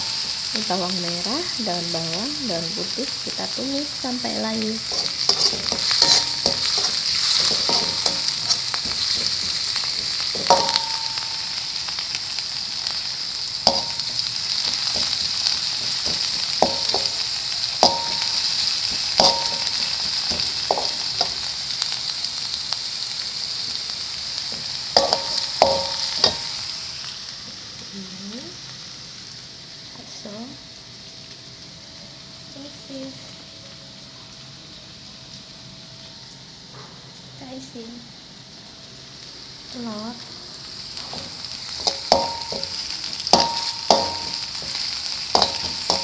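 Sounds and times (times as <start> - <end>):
onions sizzling in hot oil: 0.0 - 46.0
spatula clinking against pan: 10.4 - 11.4, 16.0 - 17.2, 25.0 - 26.6, 41.8 - 44.8, 45.4 - 46.0.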